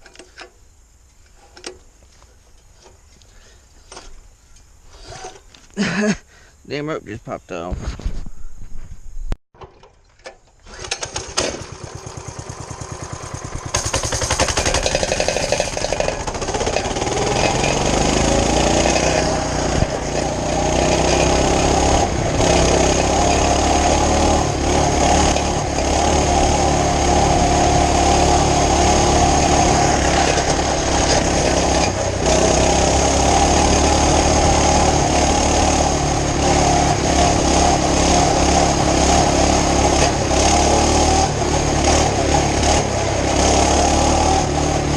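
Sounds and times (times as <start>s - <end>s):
mini bike engine starting: 10.6s - 44.9s.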